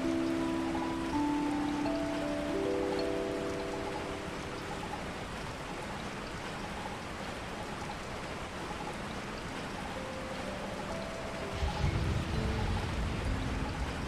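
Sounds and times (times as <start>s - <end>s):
faint held musical notes: 0.0s - 14.0s
rain falling: 0.0s - 14.0s
low rumble: 11.6s - 14.0s.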